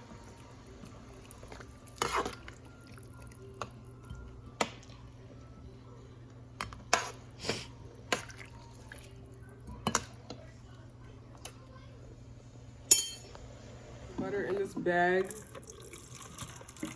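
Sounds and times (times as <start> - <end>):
kitchen knocks and clinks: 12.9 - 13.3.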